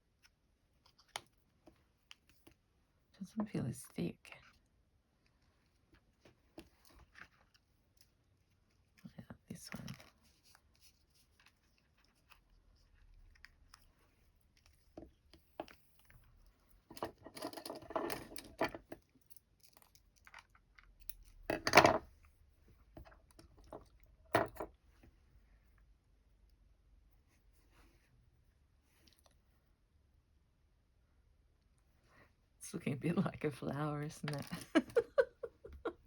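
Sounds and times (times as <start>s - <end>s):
crackly rustling of materials: 4.3s - 24.1s.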